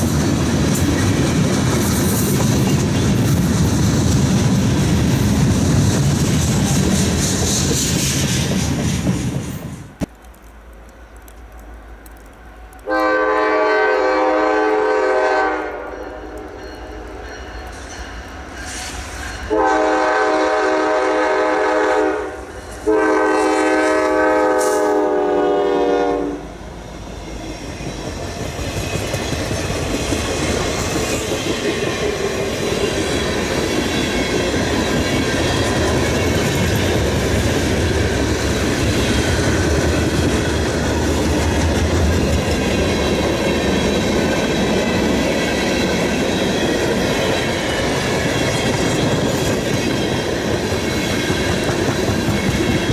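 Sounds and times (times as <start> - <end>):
train rolling past: 0.0 - 52.9
locomotive air horn blasts: 12.8 - 16.4, 19.5 - 26.4.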